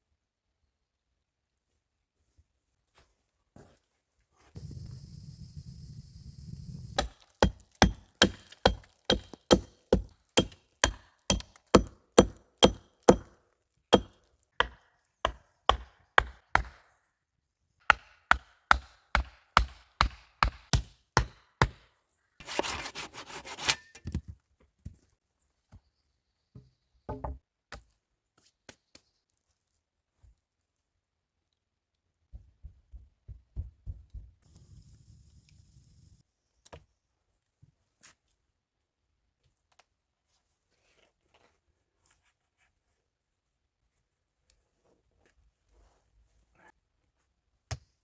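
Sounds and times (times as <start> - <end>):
tool striking wood: 7.0 - 13.3, 13.9 - 16.8, 17.9 - 21.8.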